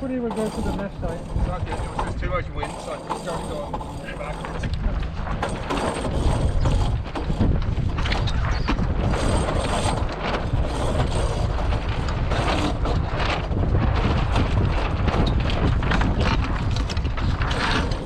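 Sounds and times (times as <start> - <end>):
rattling and clicking: 0.0 - 18.0
wind buffeting microphone: 0.0 - 18.0.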